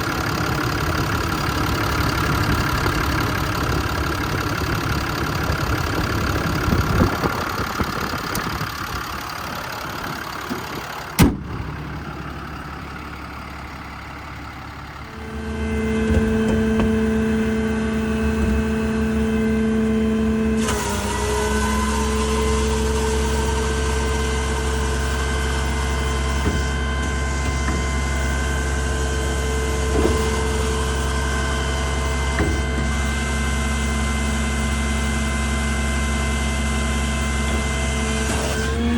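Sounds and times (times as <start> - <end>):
diesel truck engine running: 0.0 - 38.9
steady whining hum: 0.0 - 38.9
sharp click: 11.2 - 11.6.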